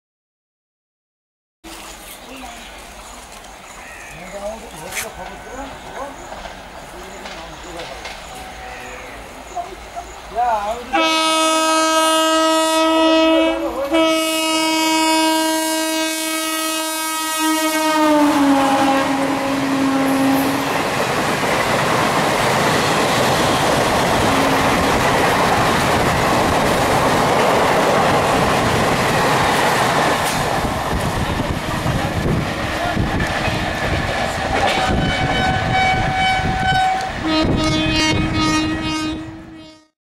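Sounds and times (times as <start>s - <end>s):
train rushing by: 1.7s - 39.7s
locomotive horn blasts: 10.9s - 20.7s, 23.4s - 24.9s, 34.7s - 40.0s.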